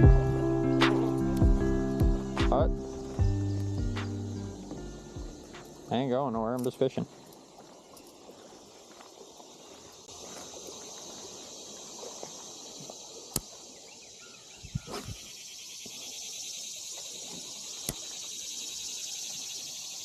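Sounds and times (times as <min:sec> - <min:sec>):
high-pitched insect chirring: 0:10.6 - 0:20.0.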